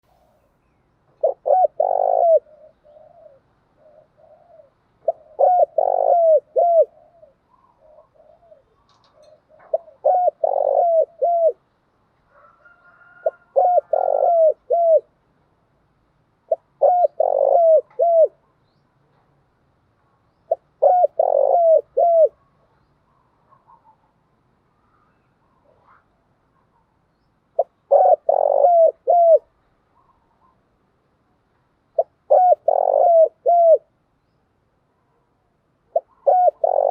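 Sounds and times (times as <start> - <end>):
dove cooing: 1.2 - 11.6, 12.3 - 15.2, 16.5 - 18.4, 20.5 - 22.6, 27.6 - 30.6, 31.9 - 33.9, 35.9 - 36.9.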